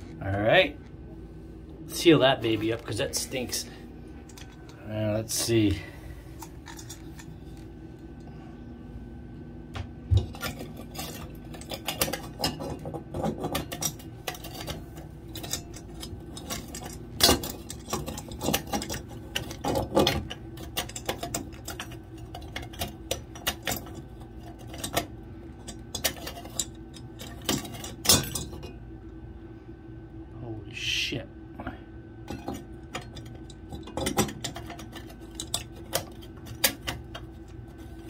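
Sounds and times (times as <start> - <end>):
metal parts clicking and knocking: 4.3 - 4.8, 6.4 - 7.6, 10.2 - 28.8, 32.3 - 38.0.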